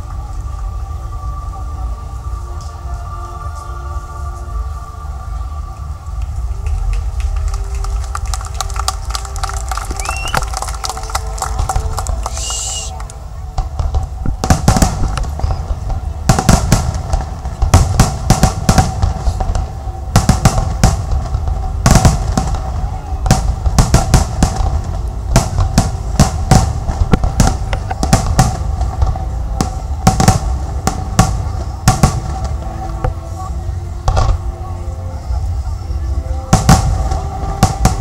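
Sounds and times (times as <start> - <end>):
low rumble: 0.0 - 38.0
fireworks bangs and crackles: 6.2 - 34.6, 35.4 - 38.0.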